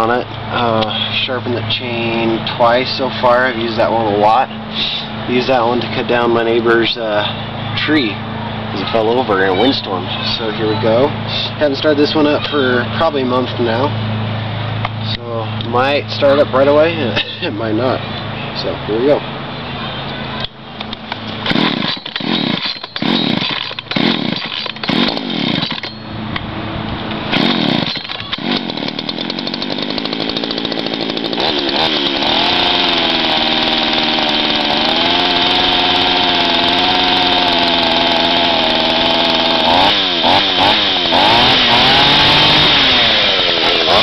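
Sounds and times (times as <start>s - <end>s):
starter cord pulls: 20.9s - 26.0s, 27.3s - 44.0s
chainsaw engine running and revving: 21.3s - 25.9s, 27.2s - 44.0s.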